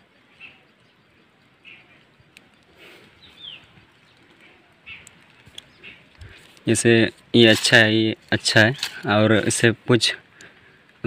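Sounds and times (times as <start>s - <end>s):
faint bird chirps: 0.0s - 6.4s.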